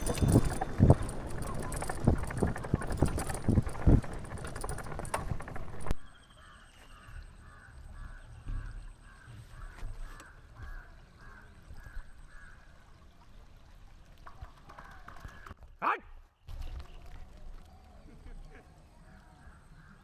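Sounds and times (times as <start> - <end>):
wind rustle on microphone: 0.0 - 6.0.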